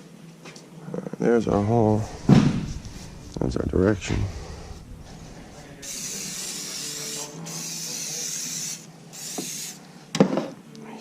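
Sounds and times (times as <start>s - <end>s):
spray hissing: 2.0s - 9.8s.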